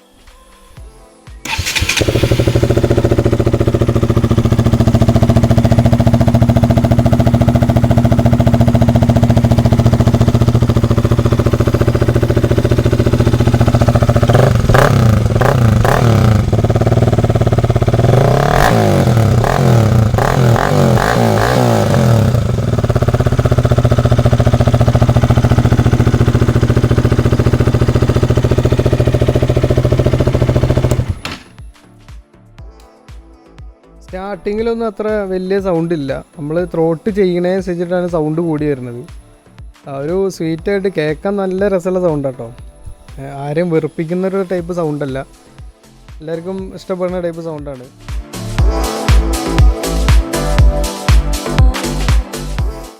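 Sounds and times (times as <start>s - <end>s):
motorcycle engine idling and revving: 1.4s - 31.6s.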